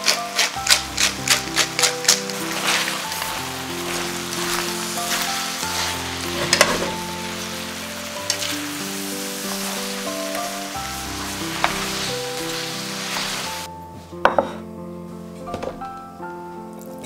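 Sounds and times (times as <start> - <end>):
chopsticks clicking against pan: 0.0 - 3.3
noodles sizzling in a hot pan: 0.0 - 13.7
soft background music: 0.0 - 17.0.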